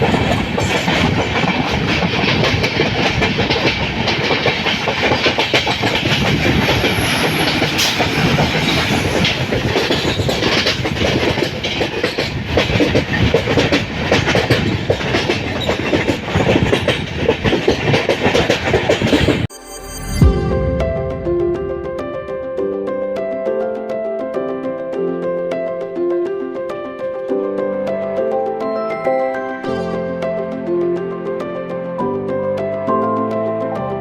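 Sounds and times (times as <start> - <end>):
train wheels clattering over rail joints: 0.0 - 19.5.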